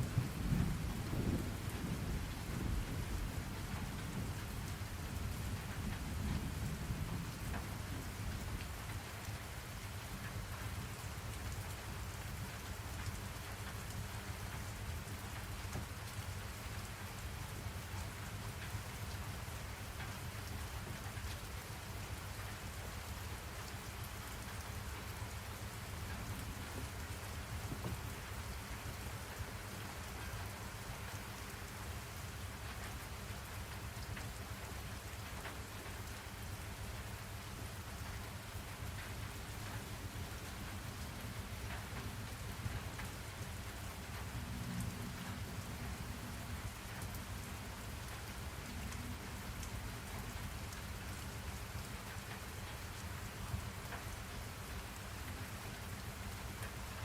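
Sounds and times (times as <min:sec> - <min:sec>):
rain falling on a surface: 0:00.0 - 0:57.0
rain hissing: 0:32.0 - 0:52.7.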